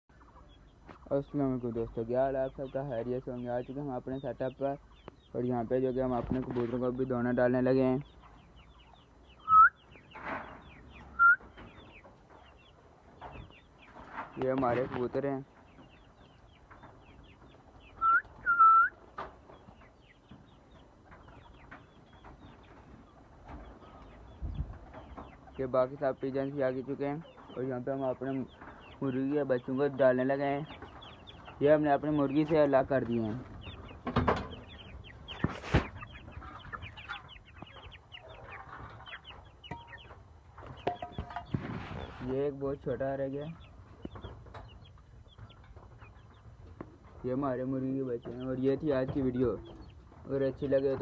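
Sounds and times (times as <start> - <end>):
birds chirping: 0.1 - 51.0
chicks peeping: 0.1 - 51.0
loud whistled notes: 9.4 - 9.8, 11.2 - 11.4, 18.0 - 19.0.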